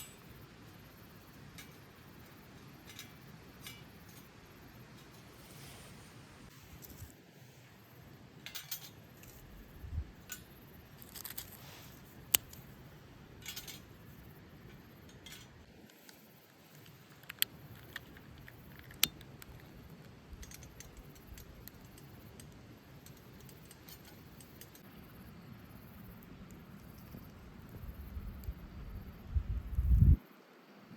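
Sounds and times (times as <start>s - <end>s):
soft rustling: 4.8s - 7.8s, 11.0s - 12.8s
metal items clicking and clinking: 8.4s - 9.5s, 13.4s - 14.0s, 14.7s - 24.9s.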